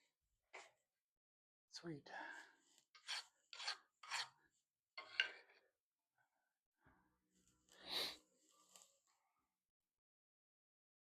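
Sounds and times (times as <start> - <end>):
hand file rasping on metal: 3.0 - 4.4.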